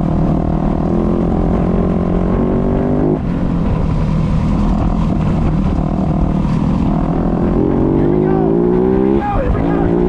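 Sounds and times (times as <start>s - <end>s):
dirt bike engine revving: 4.7s - 10.0s.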